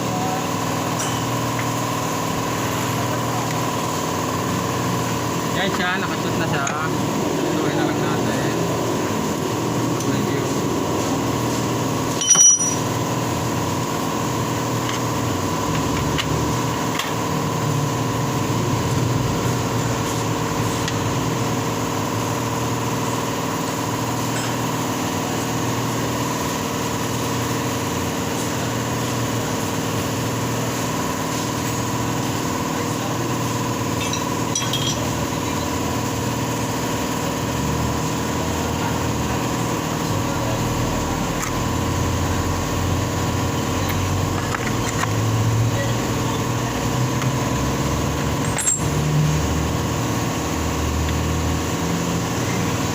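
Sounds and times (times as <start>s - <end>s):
workshop machinery hum: 0.0s - 52.9s
metal clinks: 12.1s - 13.0s, 34.0s - 35.2s, 48.4s - 49.0s.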